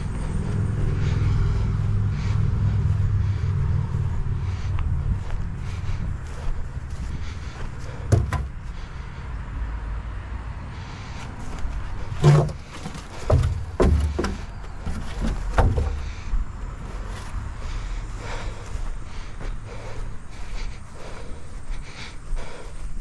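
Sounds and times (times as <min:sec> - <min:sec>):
low steady rumble: 0:00.0 - 0:09.6
knocks and clunks: 0:07.8 - 0:08.8, 0:11.5 - 0:16.4.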